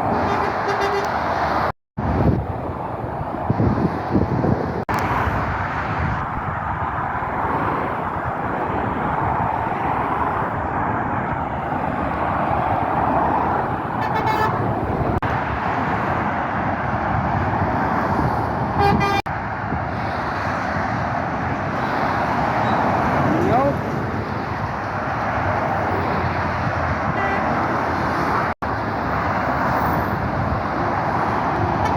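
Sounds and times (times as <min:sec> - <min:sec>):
fast road traffic roar: 0:00.0 - 0:31.9
vehicle horn toots: 0:00.2 - 0:01.2, 0:14.0 - 0:14.7, 0:18.8 - 0:19.2, 0:27.1 - 0:27.5.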